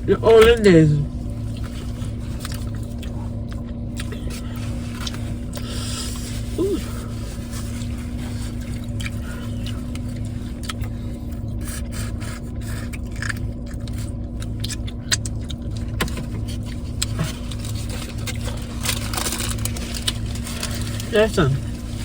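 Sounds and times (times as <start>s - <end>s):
car cabin hum: 0.0s - 22.0s
rustling: 16.4s - 22.0s.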